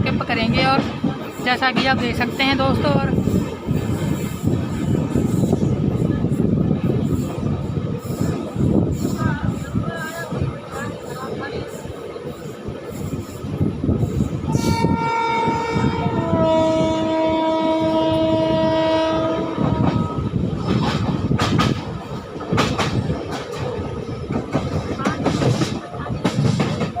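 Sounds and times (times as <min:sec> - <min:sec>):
moving train running noise: 0:00.0 - 0:27.0
train horn blast: 0:14.5 - 0:20.4
wheels clacking over rail joints: 0:19.6 - 0:27.0.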